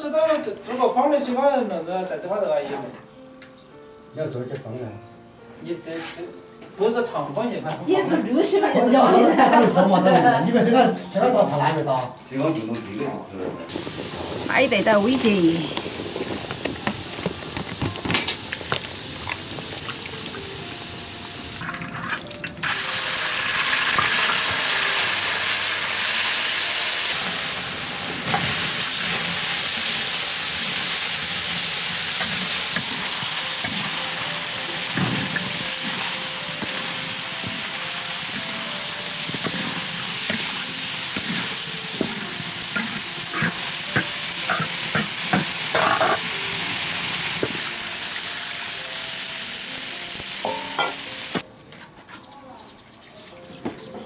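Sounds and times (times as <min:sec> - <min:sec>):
stir-fry sizzling in wok: 0:13.7 - 0:51.4
spatula scraping wok: 0:27.1 - 0:46.9.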